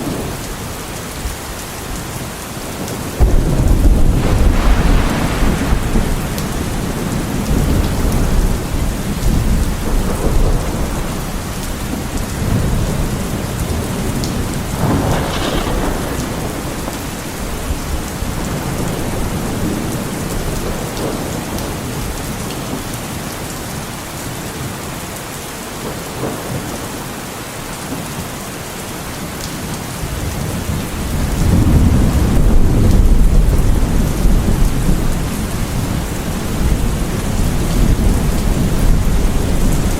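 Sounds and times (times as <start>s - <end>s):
heavy rain falling: 0.0s - 39.9s
thunder rumbling: 2.8s - 22.2s, 30.2s - 39.9s.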